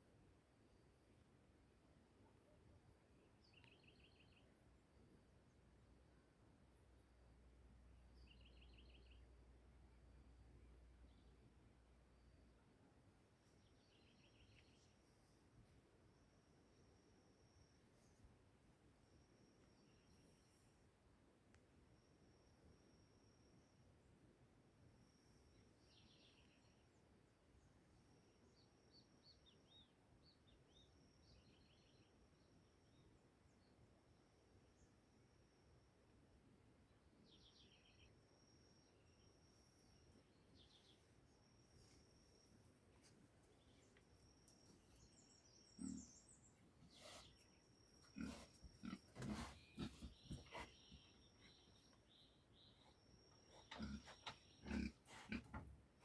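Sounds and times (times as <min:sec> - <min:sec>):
soft background noise: 0:00.0 - 0:56.0
faint high-pitched insect-like tone: 0:13.4 - 0:21.0, 0:21.6 - 0:27.0, 0:27.6 - 0:36.4, 0:37.3 - 0:49.0.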